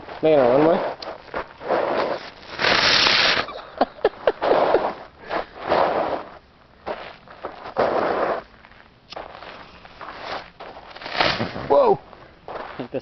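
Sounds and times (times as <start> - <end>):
fireworks popping: 1.0 - 5.0, 10.3 - 11.8
fireworks hissing: 1.8 - 3.6, 11.0 - 11.8.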